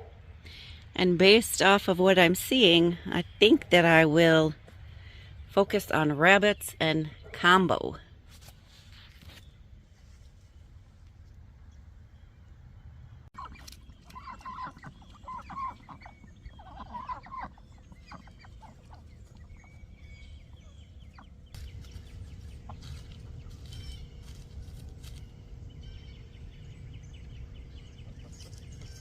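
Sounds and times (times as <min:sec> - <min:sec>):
chickens clucking: 0:13.4 - 0:25.2, 0:27.4 - 0:29.0
low rumble: 0:17.6 - 0:29.0.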